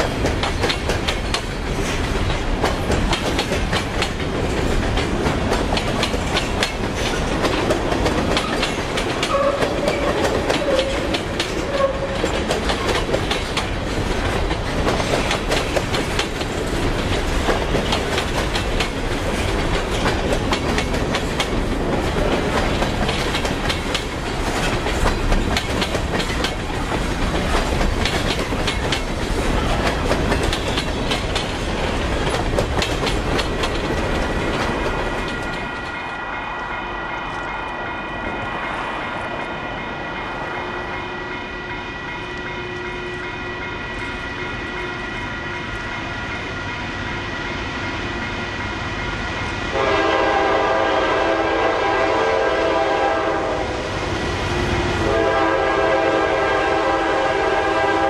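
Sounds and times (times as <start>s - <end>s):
train wheels clattering on rails: 0.0s - 58.0s
crossing warning bell ringing: 8.5s - 12.4s, 35.4s - 50.0s
locomotive horn blast: 9.3s - 12.3s, 49.7s - 53.8s, 55.0s - 58.0s.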